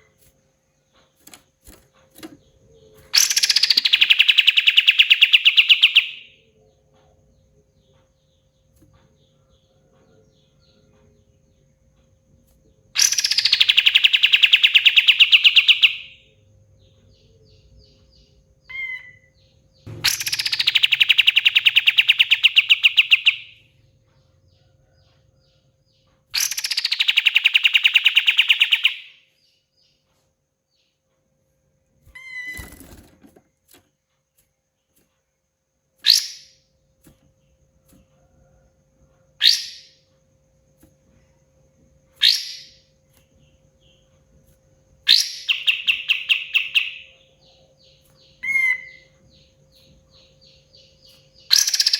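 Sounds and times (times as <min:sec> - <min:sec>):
bird chirps: 0:00.0 - 0:31.3, 0:32.0 - 0:33.1, 0:36.0 - 0:51.9
songbird rattling trills: 0:00.1 - 0:06.3, 0:13.0 - 0:16.2, 0:17.0 - 0:24.8, 0:26.3 - 0:29.2, 0:45.0 - 0:51.9.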